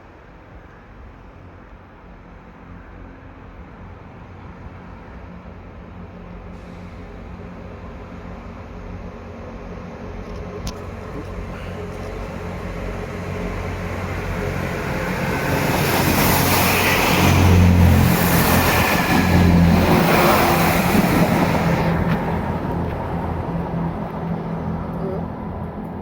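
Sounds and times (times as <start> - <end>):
diesel train engine: 0.2 - 26.0
train wheel noise: 6.6 - 26.0.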